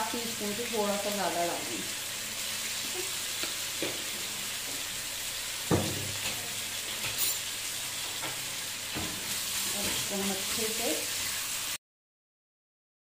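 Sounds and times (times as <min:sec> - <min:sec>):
meat sizzling in a frying pan: 0:00.0 - 0:11.8
knock: 0:05.7 - 0:06.1.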